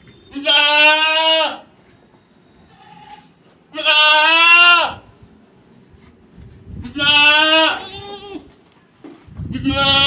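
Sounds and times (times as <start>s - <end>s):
goat bleating: 0.3s - 1.7s, 2.7s - 5.0s, 6.8s - 8.5s, 9.5s - 10.0s.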